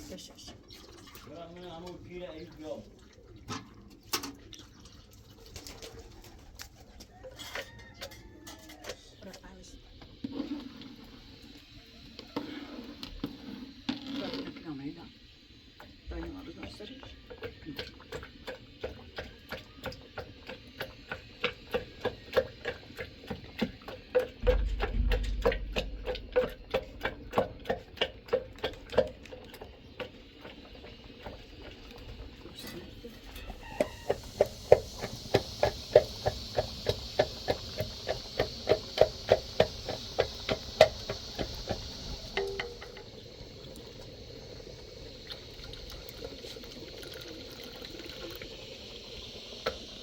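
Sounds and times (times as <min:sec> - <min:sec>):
rhythmic knocking with ringing: 0:24.2 - 0:29.2, 0:34.4 - 0:43.0
steady hiss: 0:33.1 - 0:45.8.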